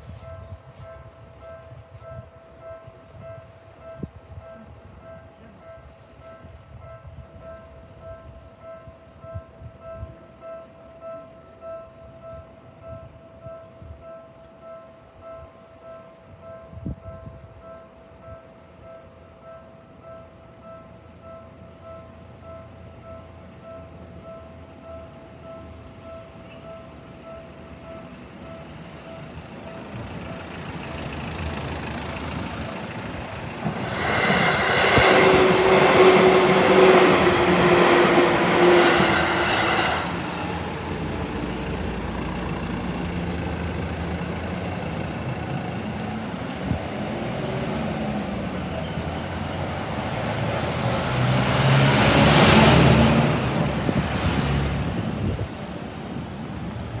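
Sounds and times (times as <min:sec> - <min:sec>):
electric train passing: 0:00.0 - 0:57.0
train whine: 0:16.4 - 0:57.0.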